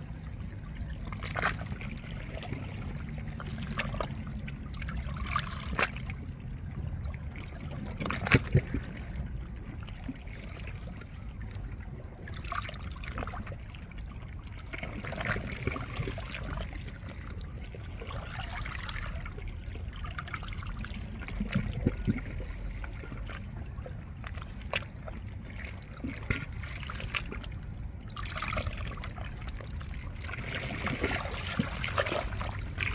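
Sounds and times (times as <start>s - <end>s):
water trickling and splashing: 0.0s - 32.9s
small waves washing over rocks: 25.6s - 32.9s.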